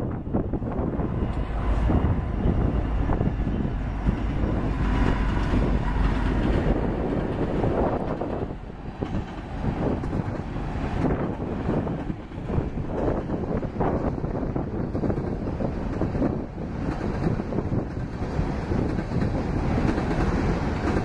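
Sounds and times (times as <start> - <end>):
locomotive engine rumble: 0.0 - 21.0
train wheels knocking on rails: 14.6 - 21.0.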